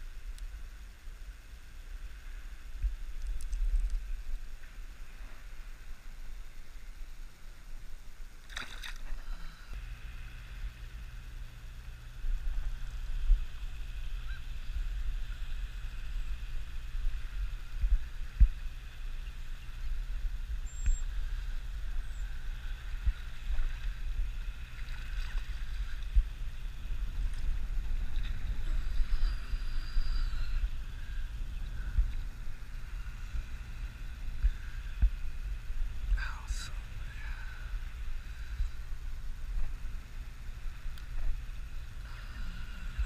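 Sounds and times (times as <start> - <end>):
wind buffeting microphone: 12.0 - 43.0.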